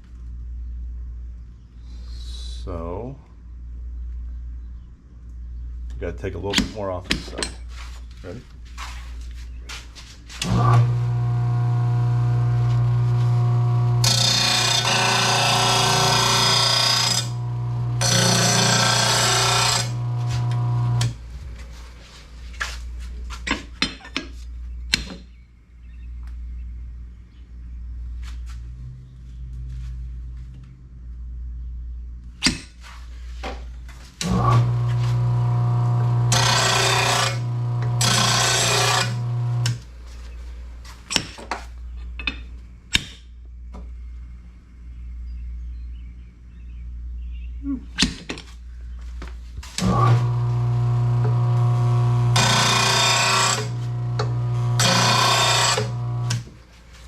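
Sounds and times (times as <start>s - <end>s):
grinding wheel hissing on steel: 10.4s - 21.2s, 34.2s - 39.8s, 49.8s - 56.5s
grinder motor hum: 10.4s - 21.4s, 34.2s - 39.9s, 49.8s - 56.5s.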